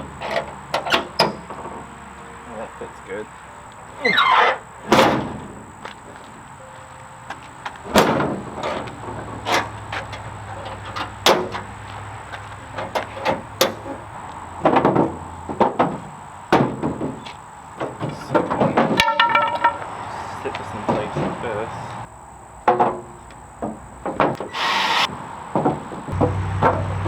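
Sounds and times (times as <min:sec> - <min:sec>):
wooden pieces knocking and clunking: 0:07.2 - 0:24.5, 0:25.5 - 0:26.9.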